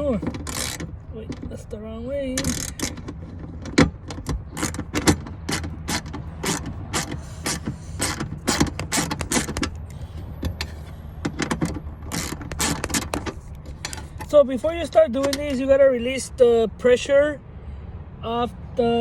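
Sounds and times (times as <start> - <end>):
ratchet wrench clicking: 0.3 - 1.0, 2.4 - 3.2, 4.1 - 10.7, 12.1 - 14.3.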